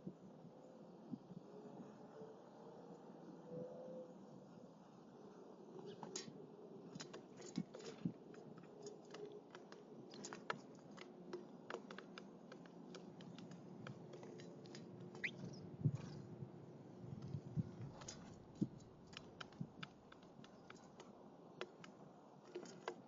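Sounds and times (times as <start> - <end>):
birds cracking seeds: 5.9 - 16.3, 17.2 - 23.0.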